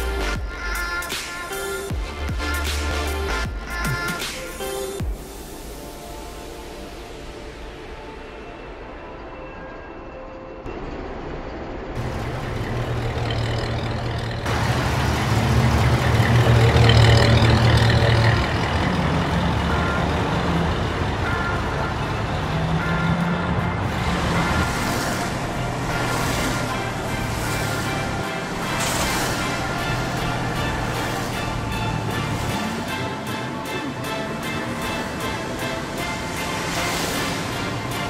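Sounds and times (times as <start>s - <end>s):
vehicle engine rumbling: 10.6s - 38.0s.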